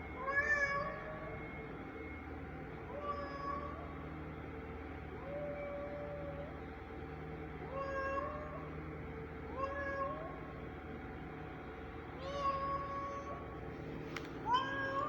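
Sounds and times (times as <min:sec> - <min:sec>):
cat meowing: 0:09.5 - 0:10.5, 0:14.5 - 0:15.0.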